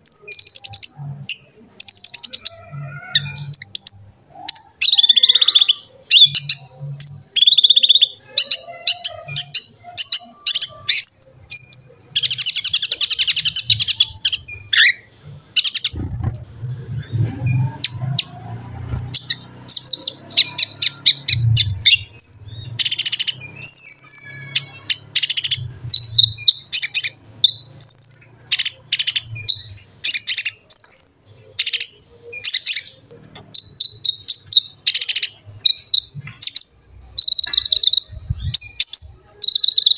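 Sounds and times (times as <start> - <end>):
bird singing chirps and trills: 0.0 - 39.9
faint low hum: 10.5 - 23.8.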